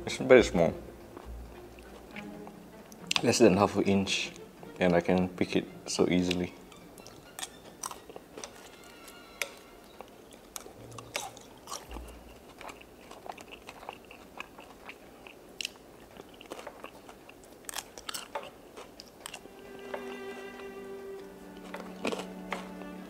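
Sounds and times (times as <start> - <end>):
person chewing fries: 1.1 - 3.3, 6.3 - 23.0
chopsticks tapping paper: 21.5 - 23.0.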